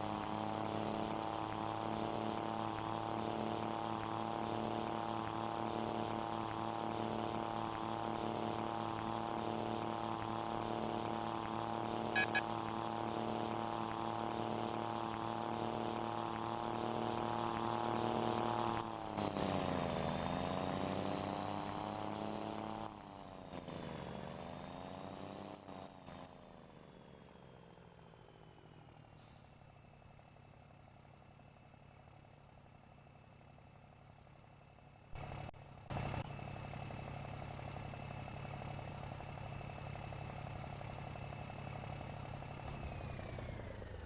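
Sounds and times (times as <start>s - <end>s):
short loud engine bursts: 12.2s - 12.4s
truck engine revving: 12.2s - 12.4s.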